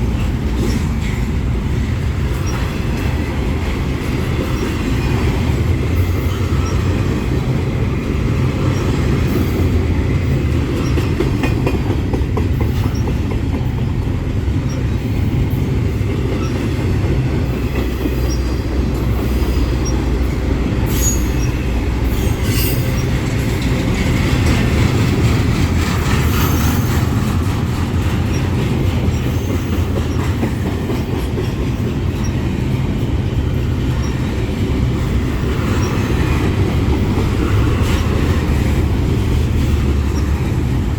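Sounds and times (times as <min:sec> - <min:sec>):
freight train rumbling past: 0:00.0 - 0:40.9
high wheel squeals: 0:17.6 - 0:23.2.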